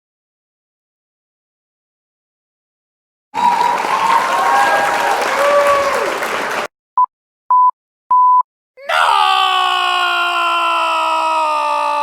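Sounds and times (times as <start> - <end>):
noisy clamour like applause: 3.4 - 6.7.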